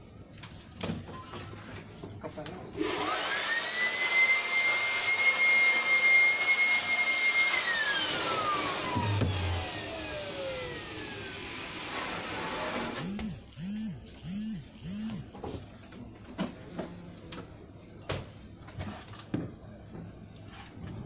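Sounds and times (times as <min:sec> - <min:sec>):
vacuum cleaner motor whine: 0:02.8 - 0:15.6.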